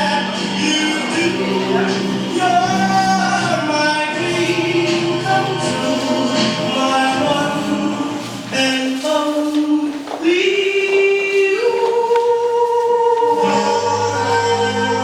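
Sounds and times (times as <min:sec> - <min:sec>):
choir singing long notes: 0:00.2 - 0:08.3, 0:11.9 - 0:15.0.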